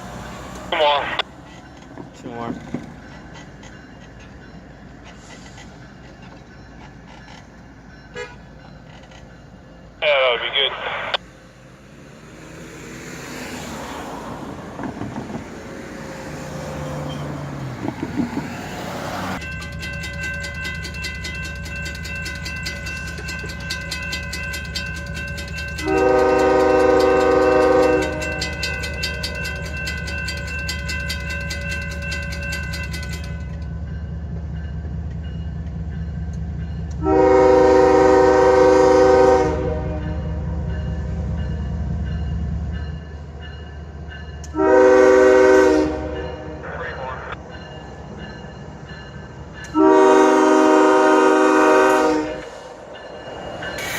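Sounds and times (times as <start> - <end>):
locomotive engine running: 16.7 - 38.6
locomotive air horn blasts: 25.8 - 28.6, 37.0 - 40.3, 44.5 - 46.6, 49.7 - 52.6.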